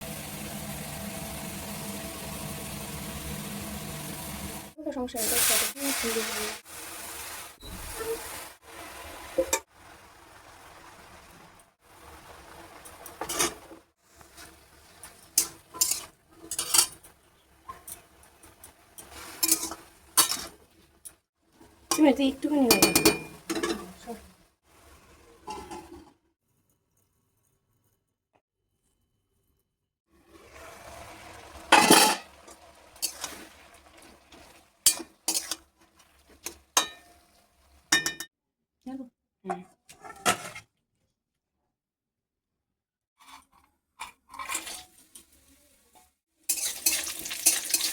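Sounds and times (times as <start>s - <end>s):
metal utensil clattering on cookware: 12.8s - 13.7s, 15.0s - 21.1s, 21.9s - 24.0s, 31.7s - 33.4s, 34.4s - 35.7s, 36.4s - 37.2s, 46.5s - 47.9s.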